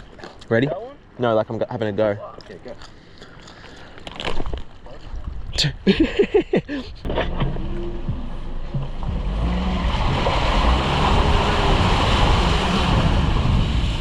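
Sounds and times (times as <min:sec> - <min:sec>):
wind rumbling on microphone: 0:04.2 - 0:14.0.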